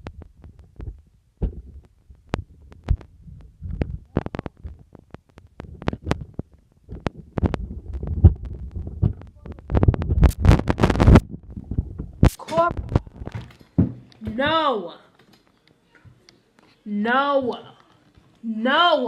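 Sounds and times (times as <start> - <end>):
rubbing on microphone: 0.0 - 13.5.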